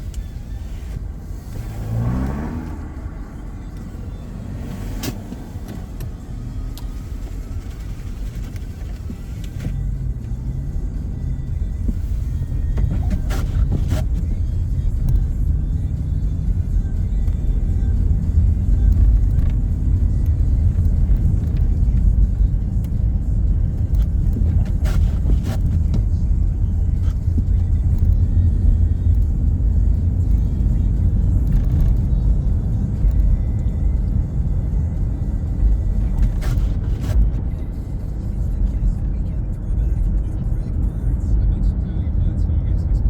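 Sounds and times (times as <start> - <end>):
car engine and road rumble: 0.0 - 43.0
music playing: 0.0 - 43.0
faint clicks: 26.8 - 34.0.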